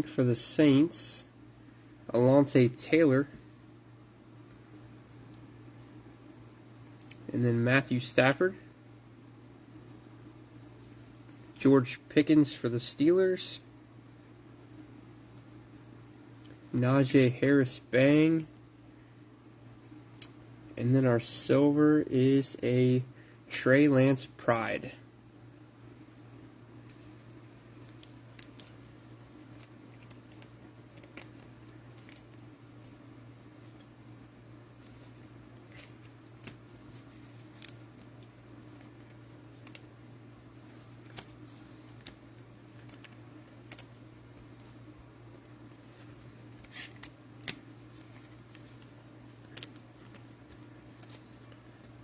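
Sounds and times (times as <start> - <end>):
low room hum: 0.0 - 52.0
trading cards clicking and snapping: 29.4 - 32.9, 34.8 - 39.9, 40.9 - 44.8, 45.9 - 52.0.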